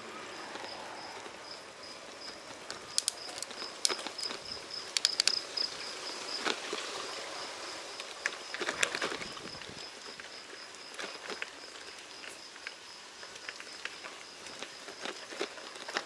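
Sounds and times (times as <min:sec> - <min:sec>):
insect chirping: 0:00.0 - 0:16.0
outdoor ambience: 0:00.0 - 0:16.0
sharp clicks and ticks: 0:02.2 - 0:05.6.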